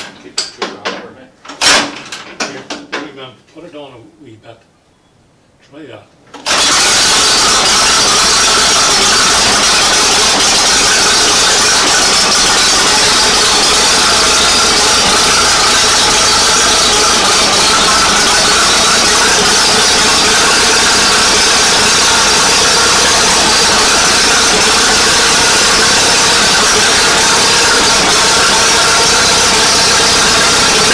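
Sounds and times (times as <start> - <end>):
tractor engine running: 6.4 - 30.9.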